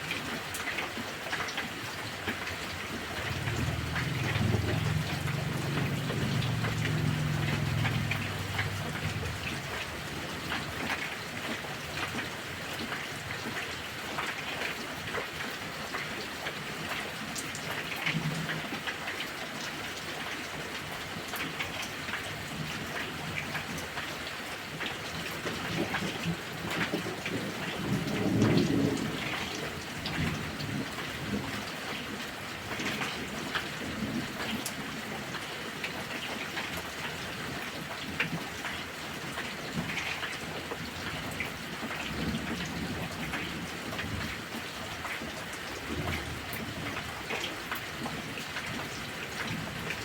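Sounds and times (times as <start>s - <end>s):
heavy rain pattering: 0.0s - 50.0s
low thunder rumbling: 3.3s - 10.6s, 27.4s - 31.4s.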